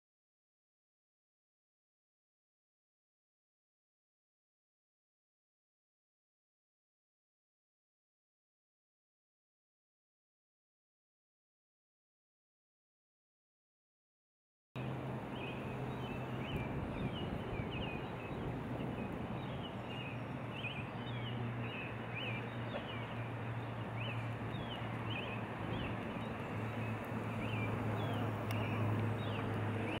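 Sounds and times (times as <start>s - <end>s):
flowing water: 14.8s - 30.0s
small birds chirping: 14.8s - 30.0s.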